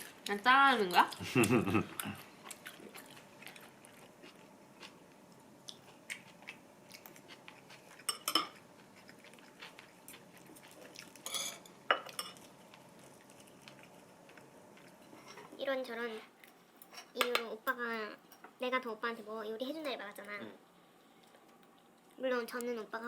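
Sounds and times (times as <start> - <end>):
utensils clinking on plates: 11.2 - 12.4.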